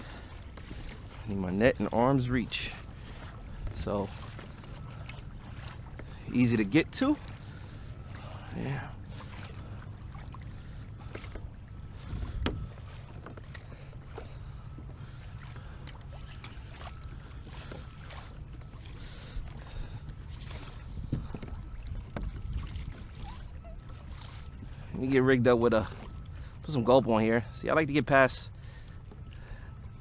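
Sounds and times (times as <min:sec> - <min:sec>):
wind and water rumble: 0:00.0 - 0:30.0
gear knocking against hull: 0:12.1 - 0:15.0.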